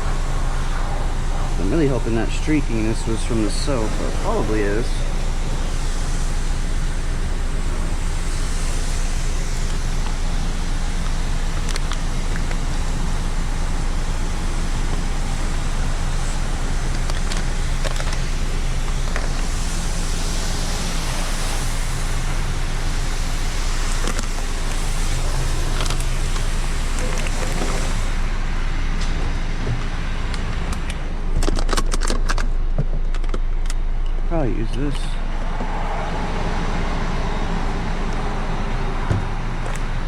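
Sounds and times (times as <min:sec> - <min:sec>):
constant hiss: 0:00.0 - 0:29.2
low machine hum: 0:00.0 - 0:40.0.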